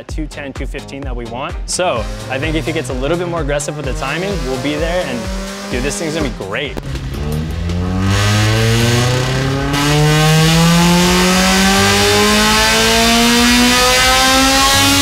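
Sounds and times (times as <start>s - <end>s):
engine revving under load: 1.8s - 15.0s.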